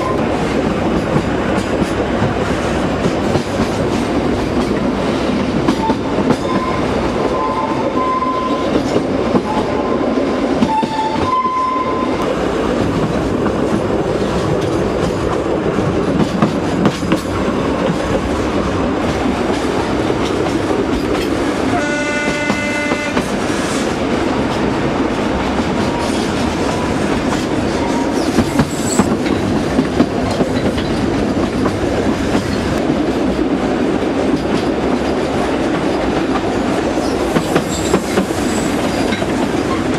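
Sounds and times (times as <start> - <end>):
train clattering on the track: 0.0 - 39.9
train horn blast: 21.7 - 23.3.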